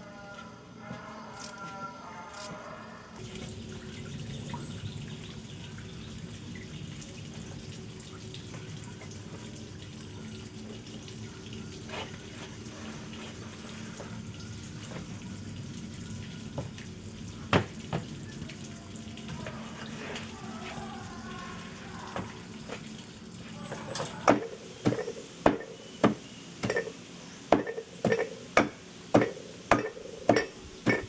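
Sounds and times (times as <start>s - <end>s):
water running and splashing: 3.2s - 31.0s.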